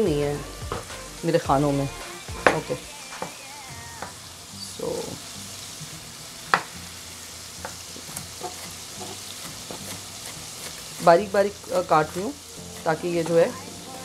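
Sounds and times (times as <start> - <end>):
spices sizzling in a pot: 0.0 - 14.0.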